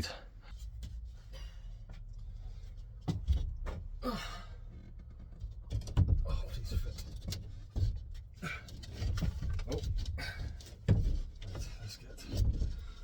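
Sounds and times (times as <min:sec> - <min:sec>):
man sighing: 0:04.0 - 0:04.6.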